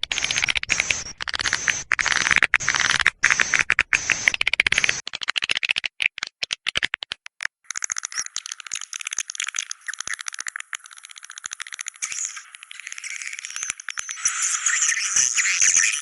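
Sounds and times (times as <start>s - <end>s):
swiftlet clicks: 0.0s - 5.8s, 6.9s - 14.9s
swiftlet rattling twitter: 7.7s - 16.0s.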